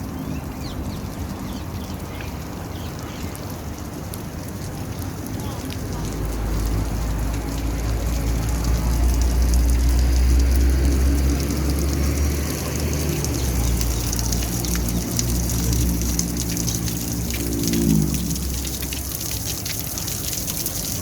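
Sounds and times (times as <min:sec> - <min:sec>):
fountain water splashing: 0:00.0 - 0:21.0
water drips: 0:00.0 - 0:21.0
low rumble: 0:15.9 - 0:19.2.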